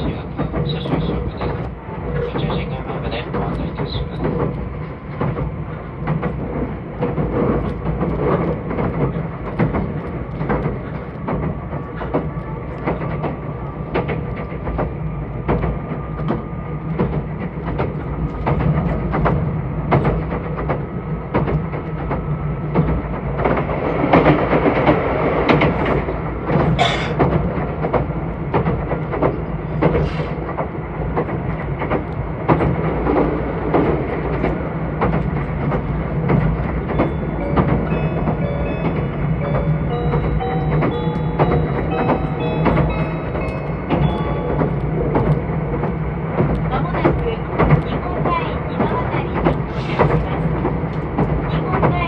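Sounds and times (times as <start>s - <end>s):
electric train rumbling on rails: 0.0s - 52.0s
wheels clicking over rail joints: 0.0s - 52.0s
onboard chime: 37.0s - 45.2s.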